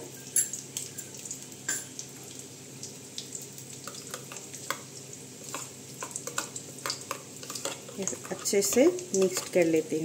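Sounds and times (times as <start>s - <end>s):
hot oil sizzling and popping: 0.0s - 10.0s
spoon stirring paste in steel bowl: 5.5s - 9.9s.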